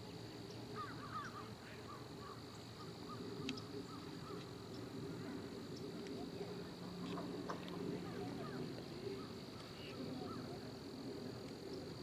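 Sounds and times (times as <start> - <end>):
insect drone: 0.0 - 12.0
scattered ticks: 3.4 - 5.0.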